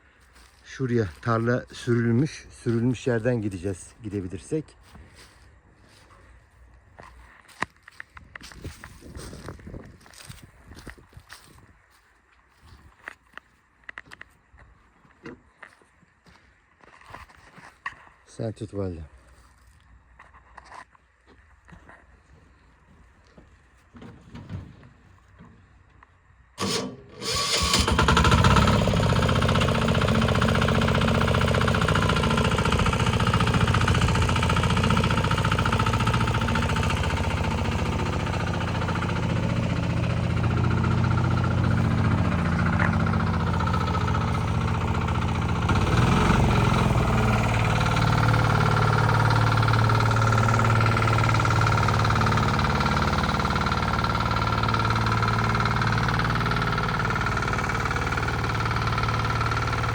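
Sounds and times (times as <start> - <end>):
tiller engine running: 26.6 - 59.9.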